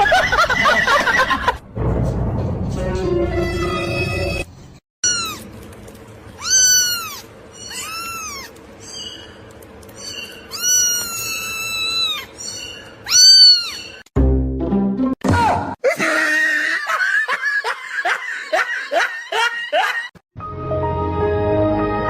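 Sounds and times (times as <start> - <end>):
cat meowing: 5.0 - 5.5, 6.4 - 8.6, 10.5 - 12.3, 13.0 - 14.0.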